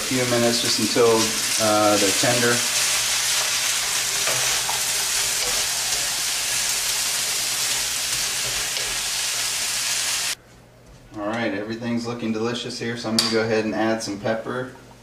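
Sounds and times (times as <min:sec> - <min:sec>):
vegetables sizzling in a wok: 0:00.0 - 0:10.4.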